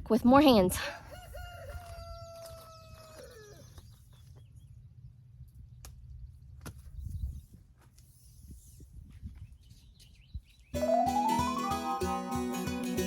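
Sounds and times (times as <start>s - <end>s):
rooster crowing: 1.0s - 3.6s.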